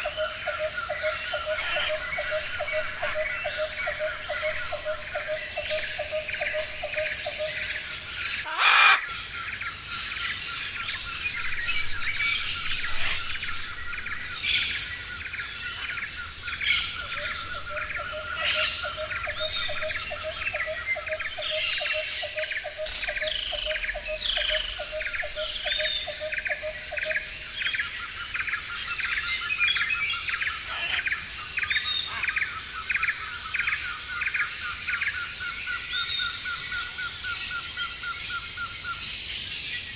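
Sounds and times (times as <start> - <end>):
parrots chirping and chattering: 8.4 - 9.0, 12.6 - 13.7, 30.7 - 31.1.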